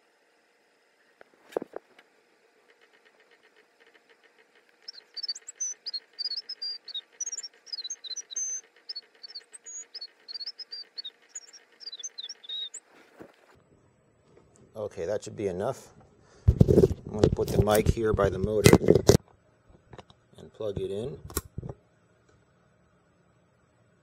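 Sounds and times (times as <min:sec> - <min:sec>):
low steady hum: 0:00.0 - 0:24.0
faint rapid ticking: 0:02.5 - 0:12.9
bird chirping: 0:02.8 - 0:13.5.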